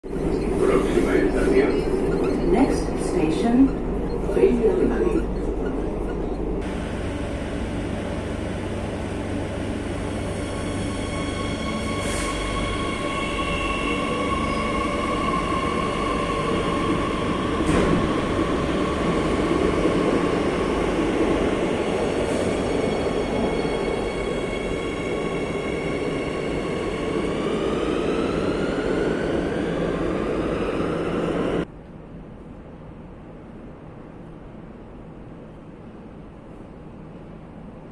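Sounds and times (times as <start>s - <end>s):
train rumbling on rails: 0.0s - 37.9s.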